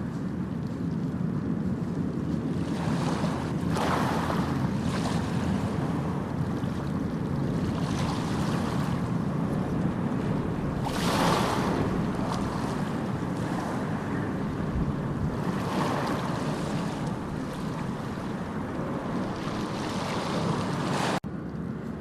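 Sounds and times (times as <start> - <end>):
sea waves breaking: 0.0 - 21.2.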